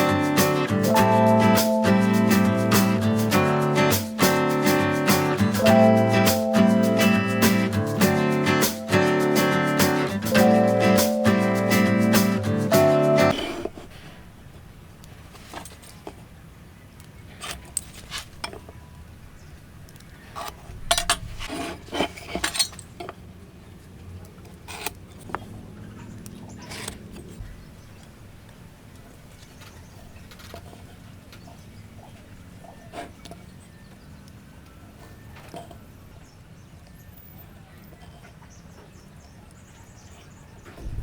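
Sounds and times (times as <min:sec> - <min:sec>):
hand tools and wood clicking: 0:19.9 - 0:23.2, 0:24.2 - 0:25.5.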